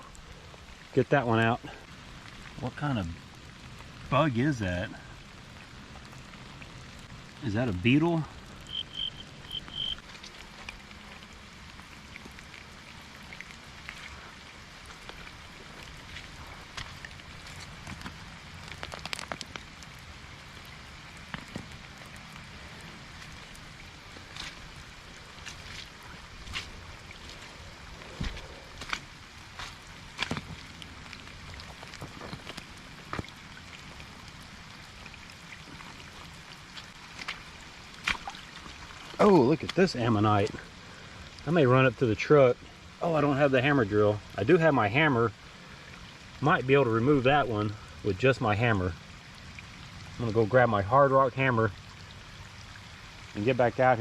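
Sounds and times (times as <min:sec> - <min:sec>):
light rain falling: 0:00.0 - 0:54.0
raindrops ticking on gravel: 0:00.0 - 0:54.0
short high chirps: 0:08.7 - 0:10.0.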